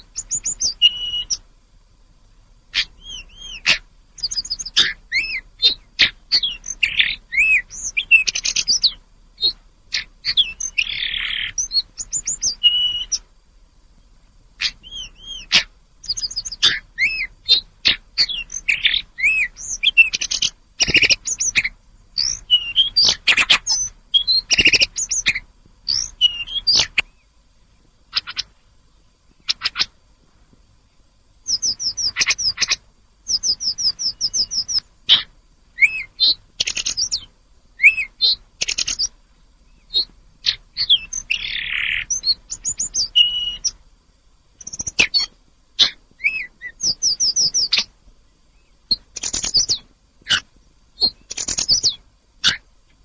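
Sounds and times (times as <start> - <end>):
songbird singing: 0.0 - 53.0.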